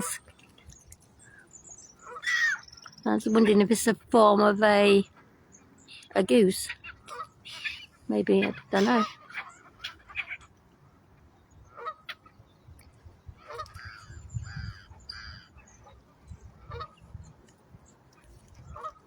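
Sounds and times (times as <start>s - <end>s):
geese honking: 6.6s - 10.5s, 11.7s - 12.3s, 16.6s - 17.0s.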